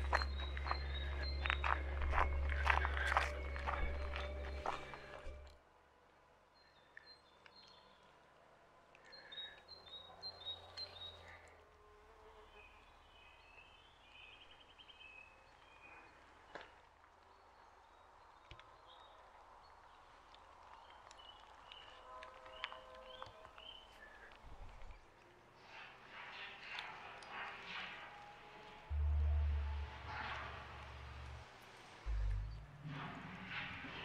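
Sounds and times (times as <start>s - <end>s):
birdsong chirps and trill: 0.0s - 5.5s, 6.5s - 8.4s, 9.0s - 11.5s, 12.4s - 34.0s.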